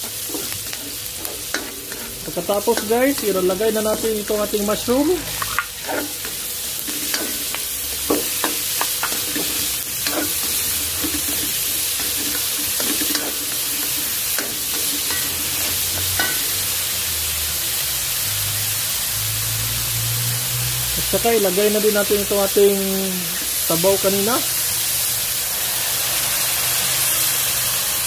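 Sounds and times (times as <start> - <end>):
spoon scraping and knocking pan: 0.0 - 4.2, 5.2 - 16.6
food sizzling in butter: 0.0 - 28.0.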